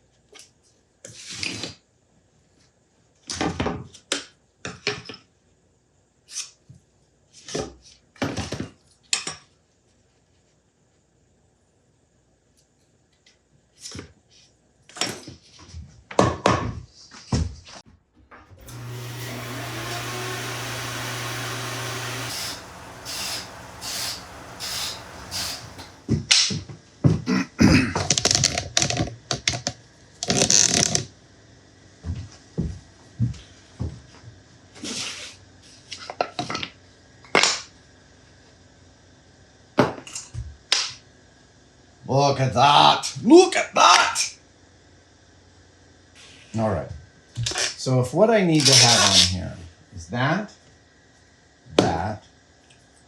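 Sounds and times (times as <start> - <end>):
small electric power tool running: 18.5 - 26.2.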